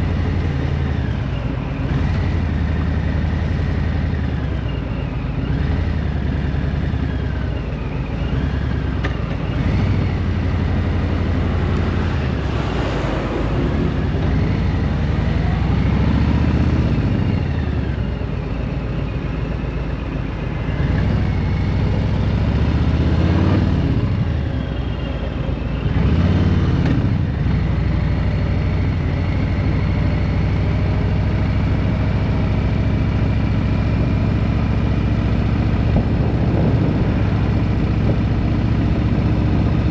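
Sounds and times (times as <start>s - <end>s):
vehicle engine revving: 8.2s - 18.0s, 20.7s - 24.6s, 25.8s - 39.9s.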